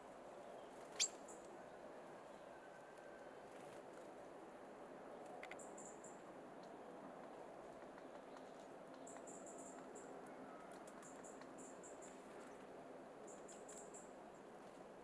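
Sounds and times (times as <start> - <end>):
high-pitched small bird calls: 0.8 - 1.4.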